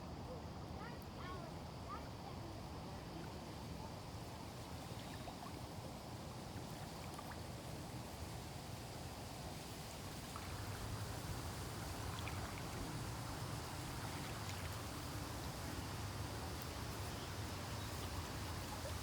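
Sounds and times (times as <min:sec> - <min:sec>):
flowing water rushing: 0:10.2 - 0:19.0.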